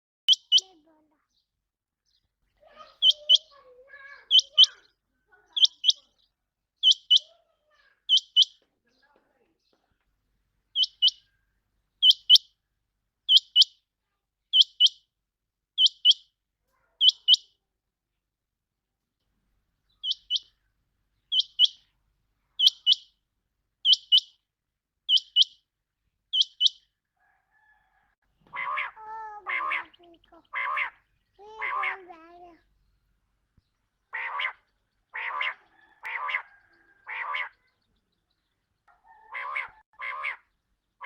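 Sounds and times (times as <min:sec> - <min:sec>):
quail calling: 0:02.7 - 0:06.1, 0:06.8 - 0:08.6, 0:10.8 - 0:11.4, 0:12.0 - 0:12.5, 0:13.3 - 0:13.7, 0:15.8 - 0:16.2, 0:17.0 - 0:17.5, 0:20.0 - 0:20.7, 0:21.3 - 0:21.9, 0:22.6 - 0:23.1, 0:23.8 - 0:24.3, 0:25.1 - 0:25.6, 0:26.3 - 0:26.8, 0:27.6 - 0:32.3, 0:34.1 - 0:37.8, 0:38.9 - 0:40.6.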